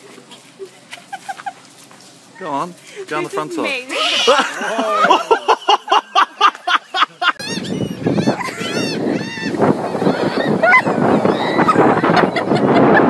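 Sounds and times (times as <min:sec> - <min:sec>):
wind: 0:00.0 - 0:13.0
gulls squawking: 0:03.2 - 0:13.0.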